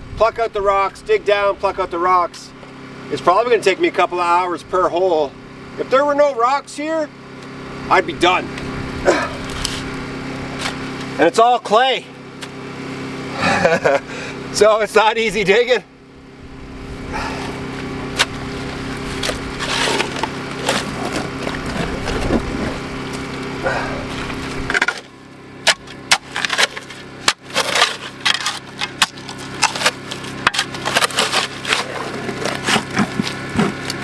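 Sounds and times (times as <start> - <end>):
small engine running: 1.8 - 34.0
shovel digging rocky clay: 17.2 - 34.0.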